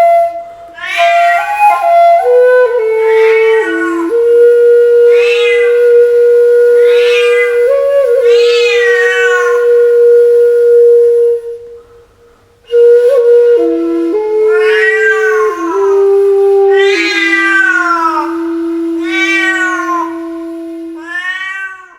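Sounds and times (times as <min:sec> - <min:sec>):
bamboo flute long notes: 0:00.0 - 0:21.6
cat meowing: 0:00.8 - 0:01.6, 0:03.0 - 0:04.2, 0:05.1 - 0:05.9, 0:06.8 - 0:09.8, 0:14.5 - 0:16.0, 0:16.7 - 0:20.4, 0:21.0 - 0:21.9.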